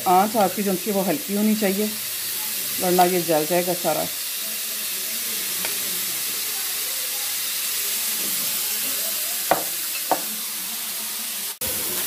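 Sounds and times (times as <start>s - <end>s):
chicken sizzling in grill pan: 0.0s - 12.0s.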